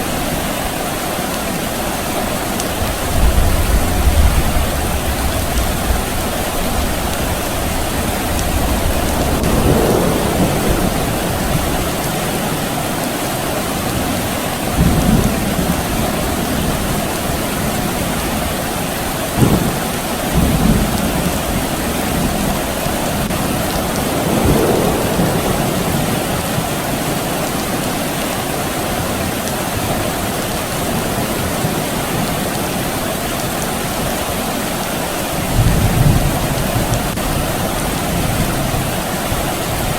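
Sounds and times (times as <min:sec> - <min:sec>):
soft rain: 0:00.0 - 0:39.9
distant thunder rumbling: 0:02.8 - 0:18.3, 0:19.4 - 0:28.2.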